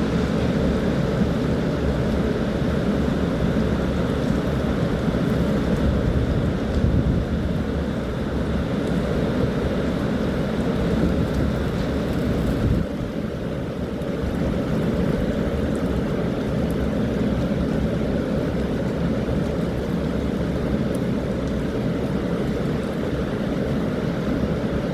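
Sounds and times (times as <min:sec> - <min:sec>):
strong wind on microphone: 0:05.7 - 0:08.0, 0:10.9 - 0:13.2.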